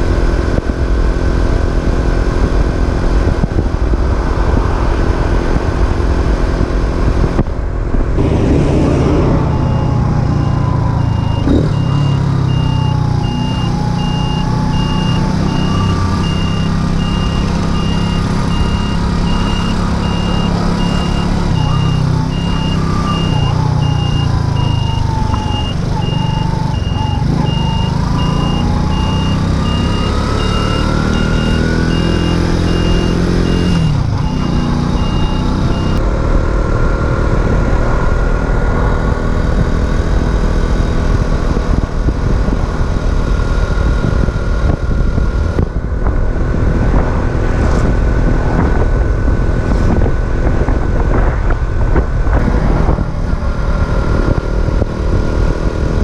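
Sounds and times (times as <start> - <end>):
wind noise: 0.0 - 12.7, 31.4 - 56.0
high electronic beeping: 8.3 - 36.0.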